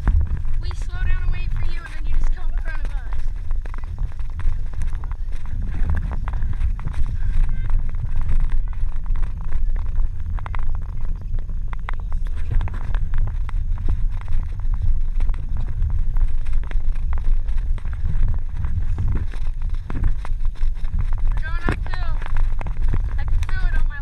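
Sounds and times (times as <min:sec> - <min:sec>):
crackling clicks: 0:00.0 - 0:24.0
wind buffeting microphone: 0:00.0 - 0:24.0.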